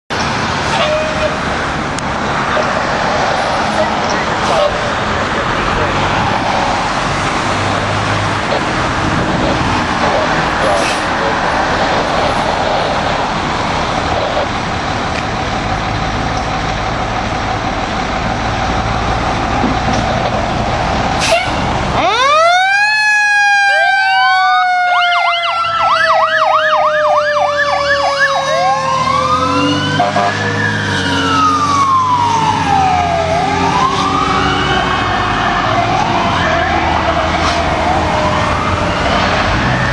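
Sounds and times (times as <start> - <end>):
truck engine and road noise: 0.1 - 39.9
electronic siren yelp and wail: 21.3 - 39.9.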